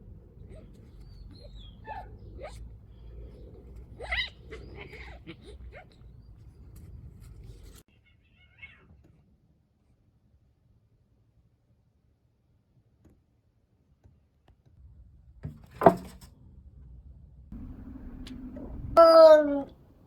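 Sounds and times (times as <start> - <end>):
cats yowling and growling: 0.4 - 6.1, 7.9 - 9.0
steady low rumble: 16.5 - 19.0.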